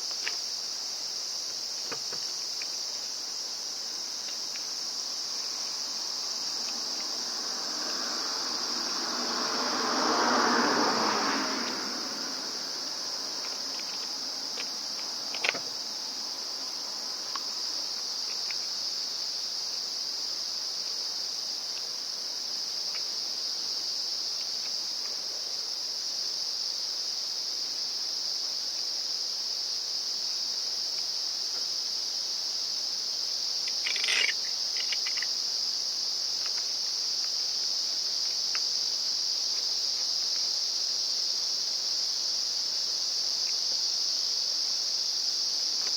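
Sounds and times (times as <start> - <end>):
high-pitched insect chorus: 0.0 - 45.9
clatter of light clicks: 33.7 - 35.3
sharp click: 33.7 - 35.3.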